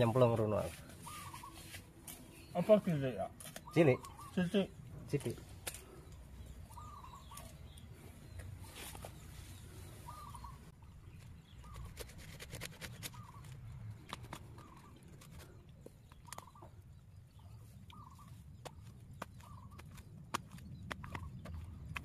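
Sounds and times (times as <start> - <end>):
blade and hands in wet soil: 11.1 - 22.0.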